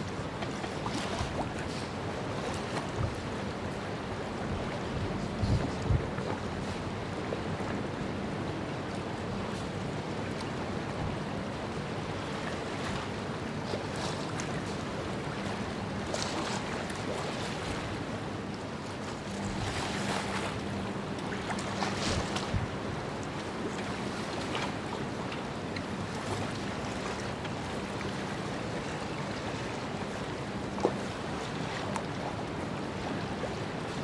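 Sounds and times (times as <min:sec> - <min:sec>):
water washing around ship: 0:00.0 - 0:34.0
wind noise: 0:04.5 - 0:06.3.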